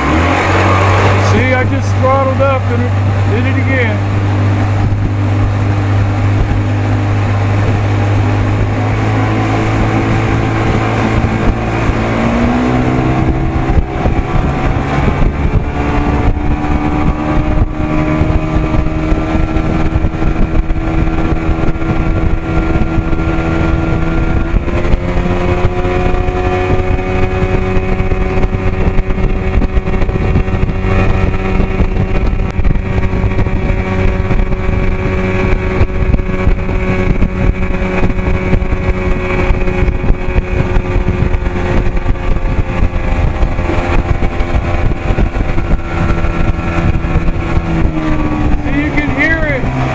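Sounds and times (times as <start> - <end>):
outboard motor running: 0.0 - 49.9.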